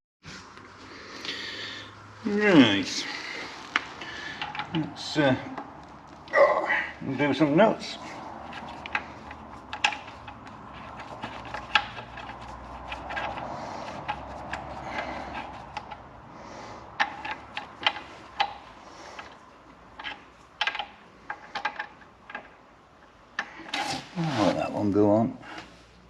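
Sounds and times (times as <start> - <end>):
hand tools clicking on metal: 3.7 - 5.7, 8.5 - 16.1, 16.9 - 22.6
soft rubbing noise: 23.7 - 26.0.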